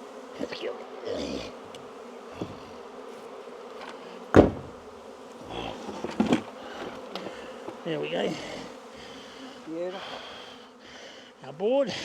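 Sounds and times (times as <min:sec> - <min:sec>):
bees buzzing: 0:00.0 - 0:12.0
knocks on hive: 0:01.7 - 0:02.8, 0:03.7 - 0:08.4.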